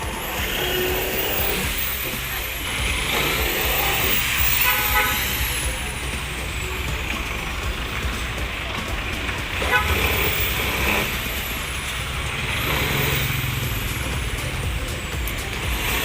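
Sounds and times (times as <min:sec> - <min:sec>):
street traffic rumbling: 0:00.0 - 0:16.0
vehicle horn: 0:03.1 - 0:05.8, 0:09.6 - 0:11.4.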